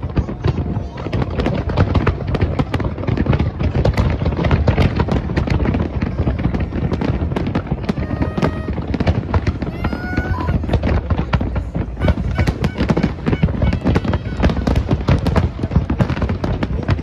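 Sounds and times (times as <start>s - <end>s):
fireworks crackling and popping: 0.0s - 17.0s
rumble of bursting shells: 0.0s - 17.0s.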